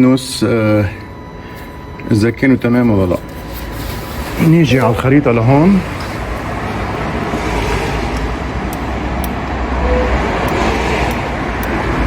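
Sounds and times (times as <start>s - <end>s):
road traffic rumble: 3.4s - 12.0s.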